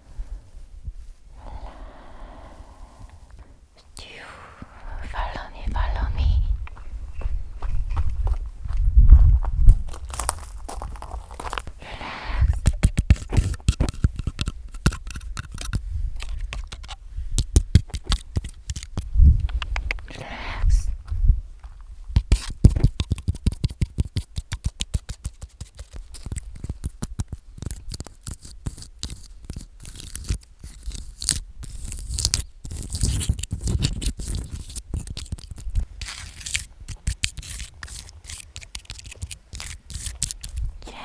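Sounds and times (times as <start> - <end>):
fingernails scratching: 12.7 - 17.0, 27.6 - 40.7.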